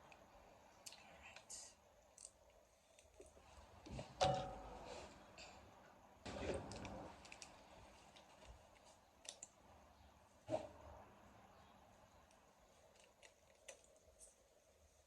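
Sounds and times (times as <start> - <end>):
objects clattering: 3.9 - 5.2
ringing knock: 4.2 - 4.8.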